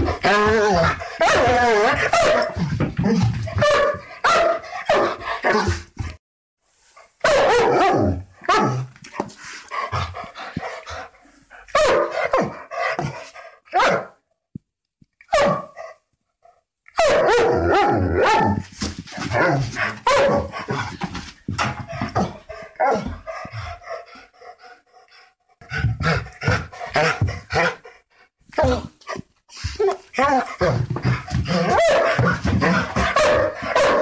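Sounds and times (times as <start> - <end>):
larger dog barking: 0.8 - 2.6, 3.5 - 5.8, 7.2 - 8.9, 11.7 - 14.2, 15.3 - 16.0, 17.0 - 18.6, 19.3 - 20.8, 31.5 - 34.0
young dog barking: 1.2 - 2.6, 3.6 - 5.6, 7.2 - 8.8, 11.7 - 12.5, 13.7 - 14.2, 15.3 - 15.8, 17.0 - 18.6, 20.0 - 20.5, 31.6 - 34.0.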